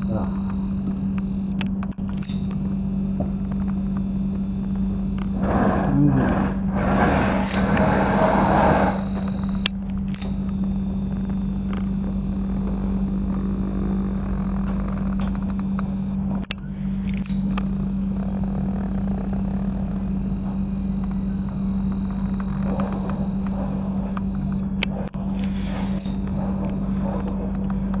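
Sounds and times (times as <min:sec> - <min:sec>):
sharp clicks: 0:00.0 - 0:05.7, 0:06.8 - 0:28.0
engine hum: 0:00.0 - 0:28.0.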